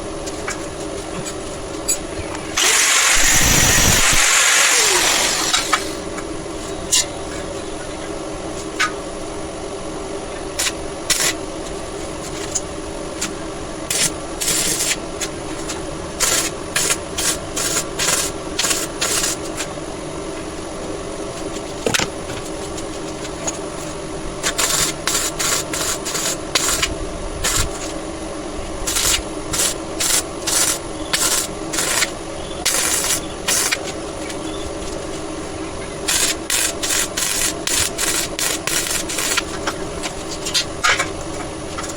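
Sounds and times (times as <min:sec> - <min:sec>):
steady hum: 0:00.0 - 0:14.4
hand tool scraping strokes: 0:01.8 - 0:06.1.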